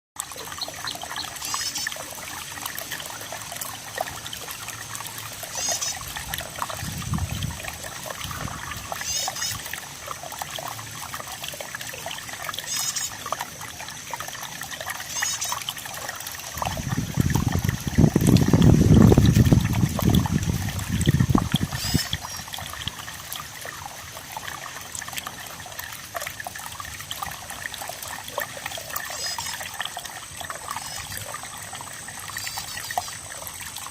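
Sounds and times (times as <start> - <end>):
water trickling: 0.2 - 33.9.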